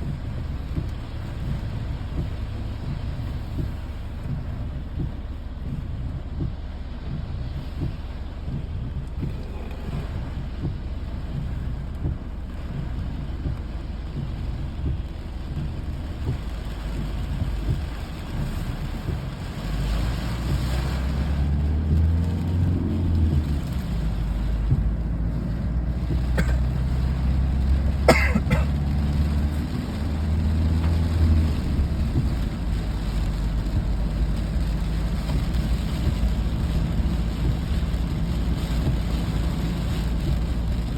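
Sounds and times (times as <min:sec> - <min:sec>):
steady low hum: 0:00.0 - 0:27.1
low rumble: 0:00.0 - 0:40.9.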